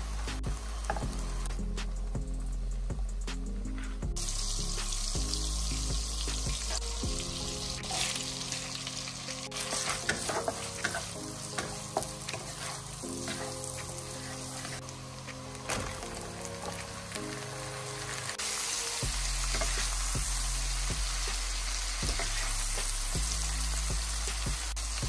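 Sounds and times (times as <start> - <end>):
butter and garlic sizzling: 0.0 - 1.5, 4.2 - 25.0
spatula scraping a wok: 9.6 - 15.0, 18.0 - 24.2.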